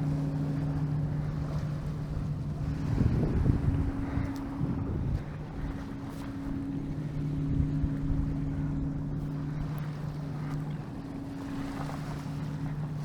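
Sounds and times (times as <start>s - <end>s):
low two-tone hum: 0.0s - 13.0s
wind buffeting microphone: 1.2s - 6.1s.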